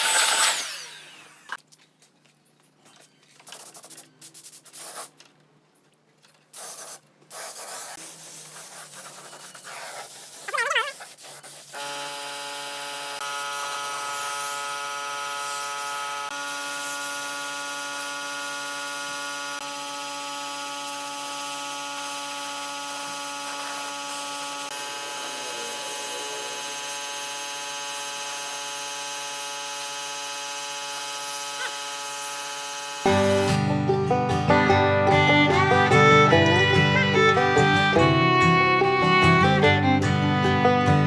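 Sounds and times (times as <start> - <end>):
power tool motor whining: 0.0 - 1.6, 11.8 - 33.6.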